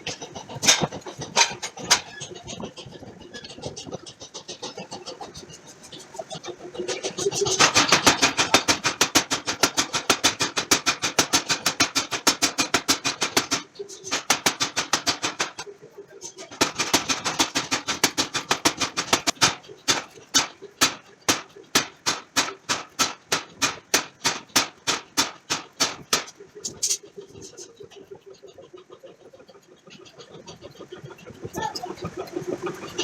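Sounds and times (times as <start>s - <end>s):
power hammer forging steel: 7.3s - 15.7s, 16.3s - 27.0s.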